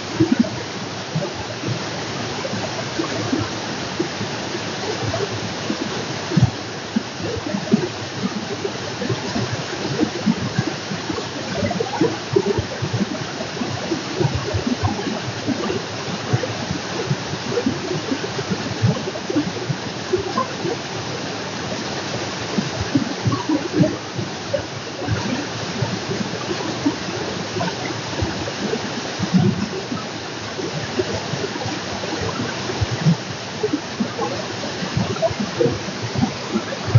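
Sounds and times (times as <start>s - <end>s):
stream running over rocks: 0.0s - 36.9s.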